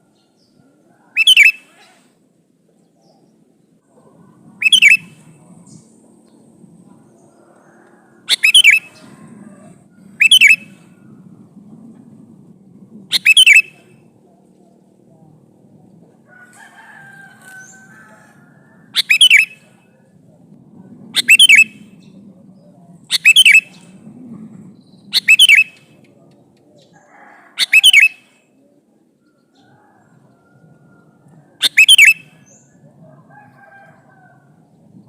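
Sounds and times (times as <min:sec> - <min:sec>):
bird calling: 0:00.4 - 0:02.0, 0:03.9 - 0:06.4, 0:07.1 - 0:11.1, 0:13.1 - 0:14.1, 0:17.4 - 0:20.1, 0:21.1 - 0:26.4, 0:27.5 - 0:28.3, 0:31.6 - 0:32.8.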